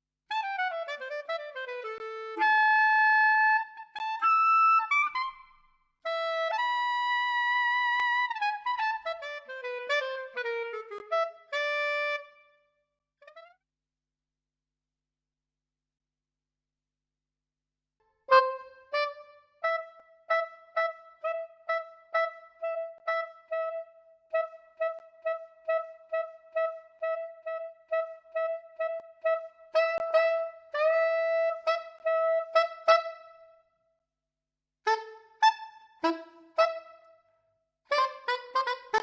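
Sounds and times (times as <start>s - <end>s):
wind instrument short notes: 34.9s - 37.2s.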